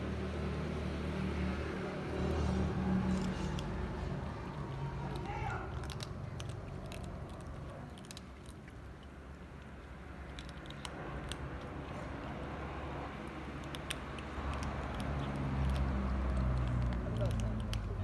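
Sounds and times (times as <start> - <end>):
cats chewing food: 0.2 - 18.0.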